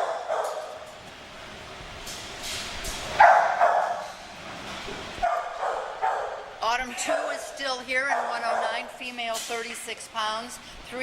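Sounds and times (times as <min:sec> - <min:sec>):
dogs barking: 0:00.0 - 0:00.8, 0:03.2 - 0:04.2, 0:05.2 - 0:09.0.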